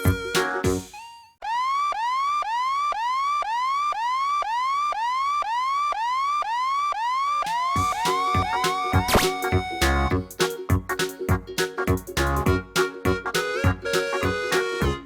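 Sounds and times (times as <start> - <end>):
music: 0.0 - 1.0, 7.8 - 15.0
electronic whooping tone: 7.5 - 10.4.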